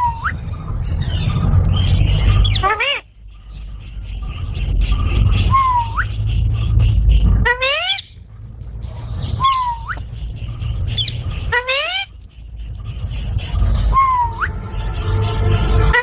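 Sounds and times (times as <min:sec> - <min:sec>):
steady low rumble: 0:00.0 - 0:16.0
parrot calling loudly: 0:02.4 - 0:03.1, 0:04.0 - 0:08.2, 0:09.2 - 0:16.0.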